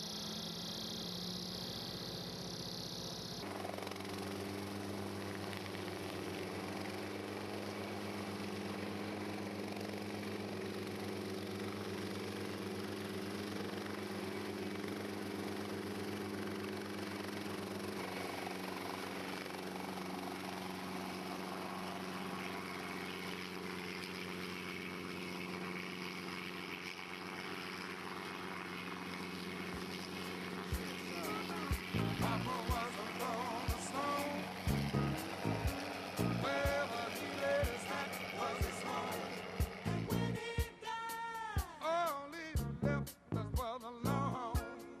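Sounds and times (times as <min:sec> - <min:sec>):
light aircraft piston engine: 0:00.0 - 0:45.0.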